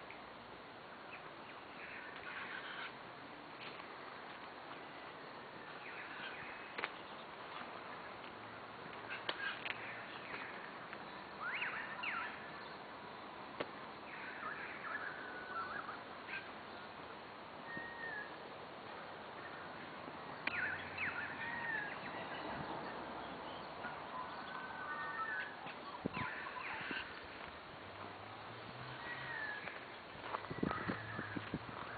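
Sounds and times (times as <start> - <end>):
birds sweeping calls: 1.0 - 8.2, 8.8 - 31.9
short whistled bird notes: 17.7 - 18.3.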